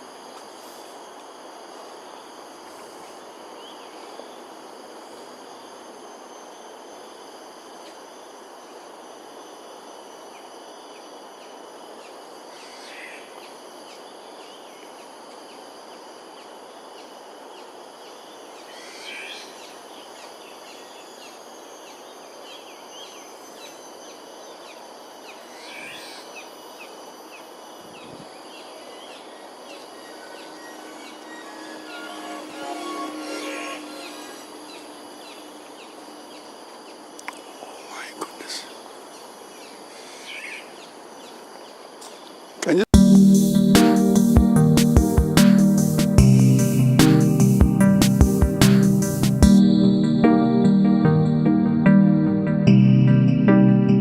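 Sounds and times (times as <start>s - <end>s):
insects trilling: 0.0s - 50.0s
background hum: 0.0s - 54.0s
bird calling: 37.8s - 42.8s.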